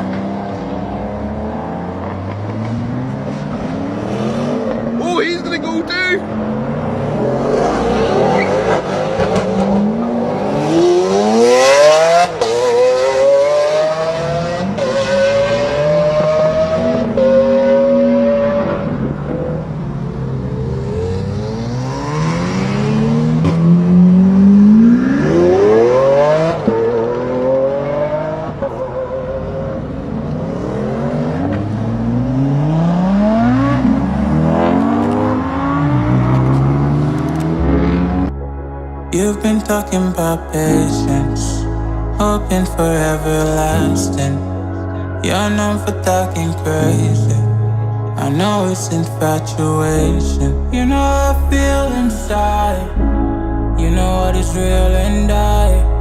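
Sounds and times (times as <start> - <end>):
car engines accelerating and revving: 0.0 - 38.4.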